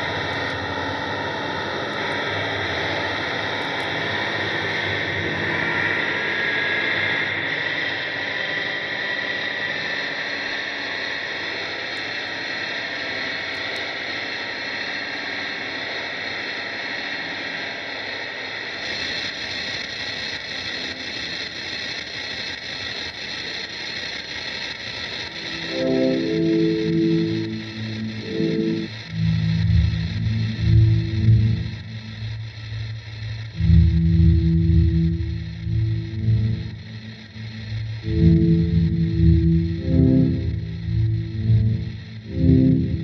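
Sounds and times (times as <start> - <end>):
distorted noise drone: 25.0 - 43.0.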